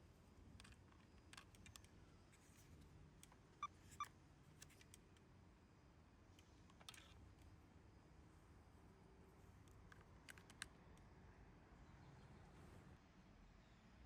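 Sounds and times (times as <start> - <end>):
small clicks: 0.5 - 2.0, 9.6 - 11.1.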